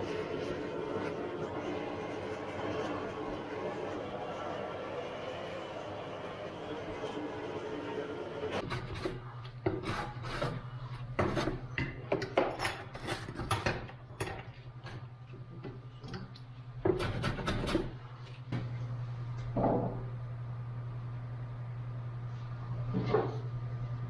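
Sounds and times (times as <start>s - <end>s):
low hum: 18.0s - 24.0s.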